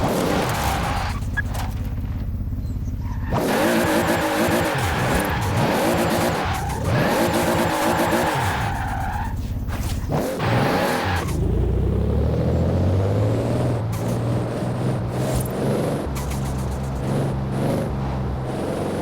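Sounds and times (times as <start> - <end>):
car engine revving: 3.0 - 9.2, 10.1 - 19.0.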